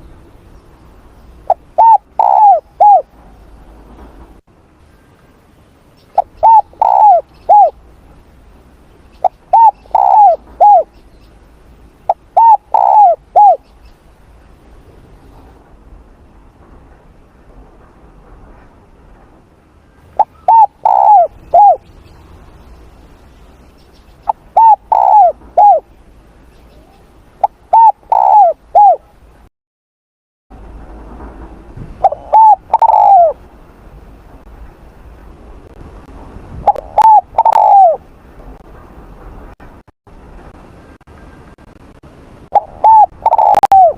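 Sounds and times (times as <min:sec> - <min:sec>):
dove cooing: 0:01.5 - 0:03.1, 0:06.2 - 0:07.8, 0:09.2 - 0:10.9, 0:12.1 - 0:13.6, 0:20.2 - 0:21.9, 0:24.2 - 0:25.9, 0:26.8 - 0:29.1, 0:32.0 - 0:33.4, 0:36.7 - 0:38.0, 0:42.6 - 0:43.9.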